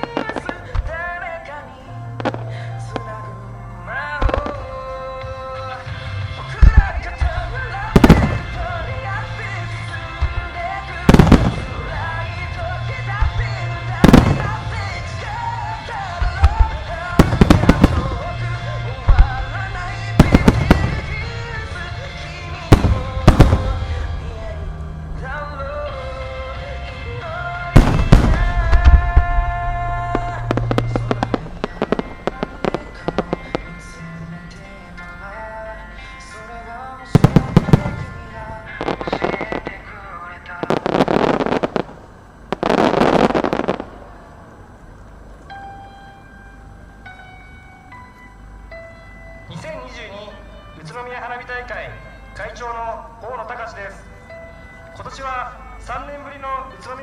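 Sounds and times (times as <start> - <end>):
fireworks bursting in sharp booms: 0.0 - 1.0, 6.5 - 9.4, 10.2 - 24.3, 27.7 - 34.0, 37.1 - 44.2
music over loudspeakers: 0.0 - 44.1, 44.9 - 57.0.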